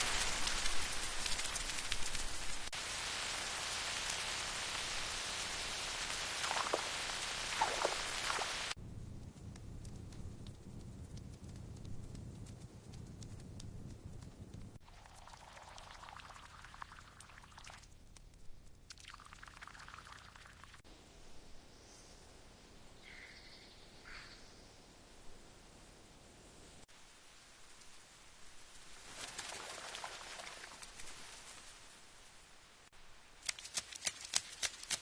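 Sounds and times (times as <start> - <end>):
heavy rain falling: 0.0 - 8.8
wood fire crackling: 0.0 - 20.7.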